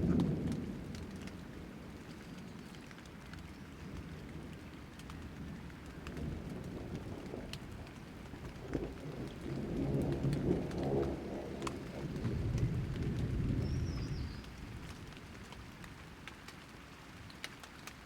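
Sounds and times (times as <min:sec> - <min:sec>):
thunder rumble: 0:00.0 - 0:02.0, 0:04.0 - 0:15.8
rain falling in drops: 0:00.0 - 0:18.0.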